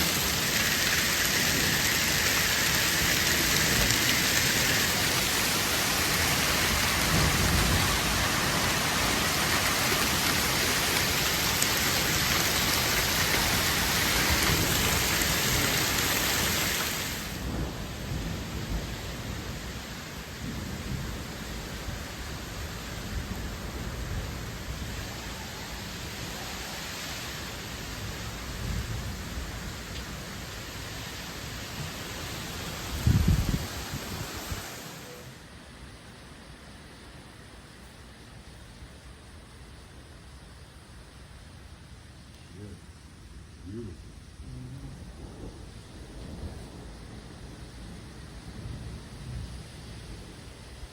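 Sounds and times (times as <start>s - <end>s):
hail pouring down: 0.0s - 35.1s.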